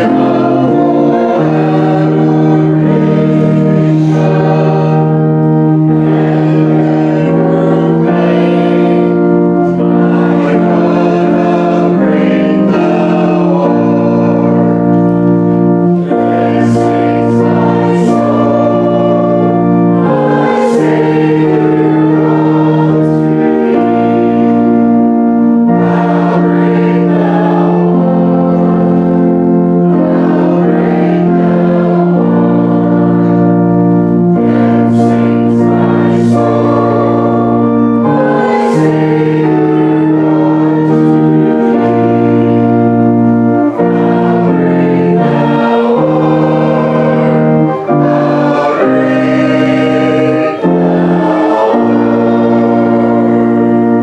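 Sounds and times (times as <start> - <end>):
organ chords: 0.0 - 54.0
people singing: 0.0 - 54.0.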